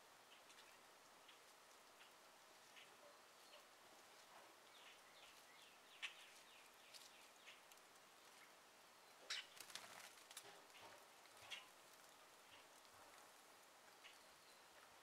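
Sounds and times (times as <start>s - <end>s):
faint steady hiss: 0.0s - 15.0s
birds chirping: 4.6s - 7.7s.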